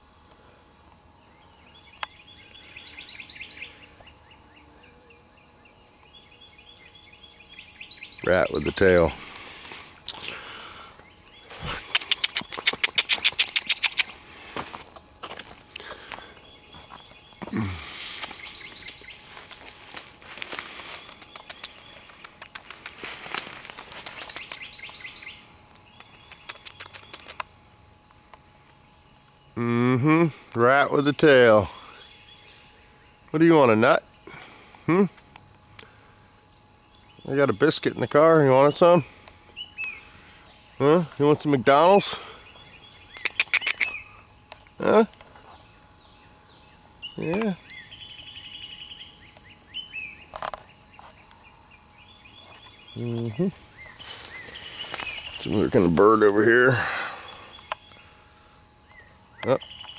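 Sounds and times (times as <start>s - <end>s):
faint outdoor background: 0.0s - 59.9s
small birds chirping: 0.0s - 59.9s
sharp click: 20.7s - 23.0s.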